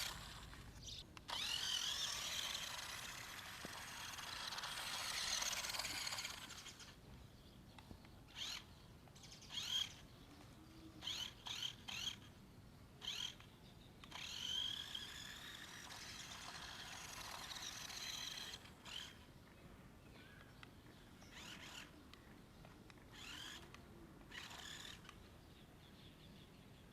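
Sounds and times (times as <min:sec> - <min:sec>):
toy car electric motor whining: 0:00.0 - 0:07.0, 0:08.3 - 0:10.0, 0:11.0 - 0:12.3, 0:13.0 - 0:19.3, 0:21.2 - 0:22.0, 0:23.1 - 0:25.2.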